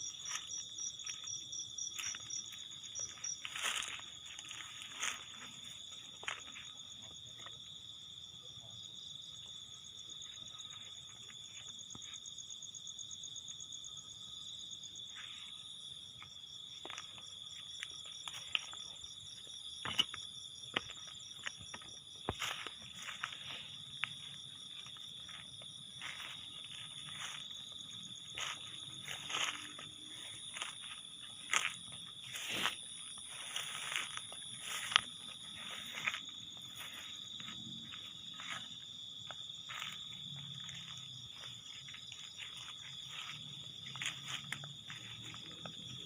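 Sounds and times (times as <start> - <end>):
insects trilling: 0.0 - 46.0
rustling through vegetation: 2.0 - 6.7.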